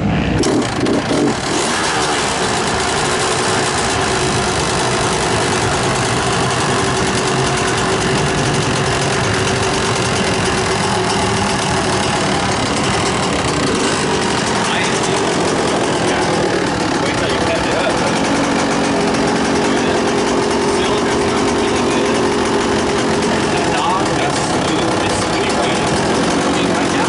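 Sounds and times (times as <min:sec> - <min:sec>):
motorcycle engine idling: 0:00.3 - 0:27.0.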